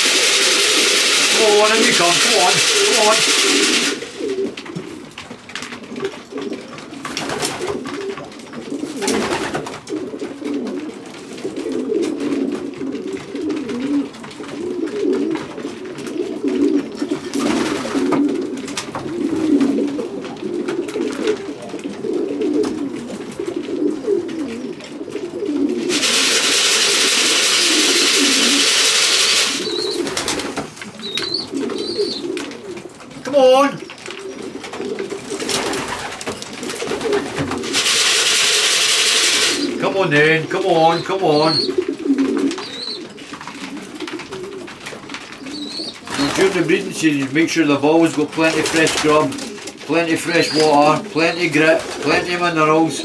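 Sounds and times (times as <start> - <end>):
rustling: 0.0 - 6.0, 25.6 - 47.1
pigeons cooing: 0.0 - 53.0.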